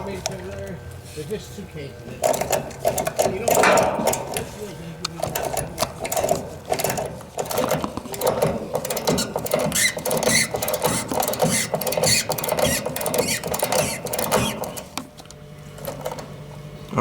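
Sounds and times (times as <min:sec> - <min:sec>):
ratchet wrench clicking: 0:08.2 - 0:14.8.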